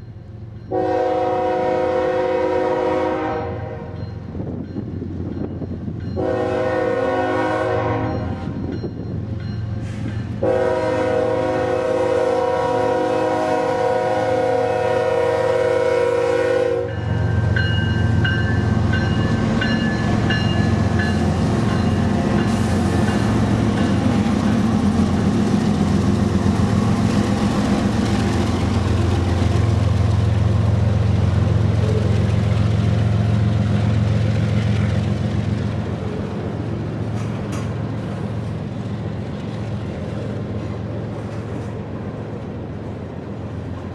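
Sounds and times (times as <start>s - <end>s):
diesel train rumble passing: 0.0s - 43.9s
train air horn blast: 0.7s - 4.0s, 6.2s - 8.4s, 9.9s - 17.0s
wheel and rail noise: 3.8s - 43.9s.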